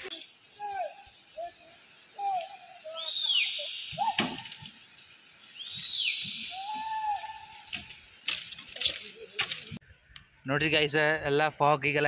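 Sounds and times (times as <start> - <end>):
high falling bird calls: 0.0 - 8.3
lower whistled bird notes: 0.4 - 4.6, 5.4 - 7.8.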